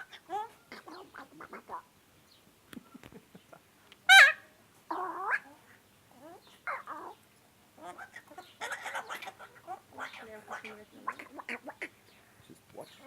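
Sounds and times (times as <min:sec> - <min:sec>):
parrot harsh call: 0:04.1 - 0:05.6, 0:07.8 - 0:11.9
parrot warbling shriek: 0:04.1 - 0:05.6, 0:07.8 - 0:11.8.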